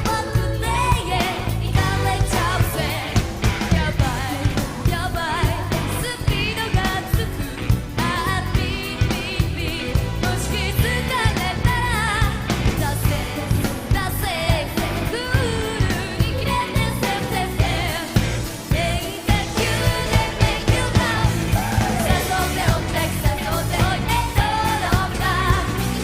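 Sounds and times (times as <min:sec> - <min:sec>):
dance beat and band: 0:00.0 - 0:26.0
woman singing pop song: 0:00.0 - 0:26.0.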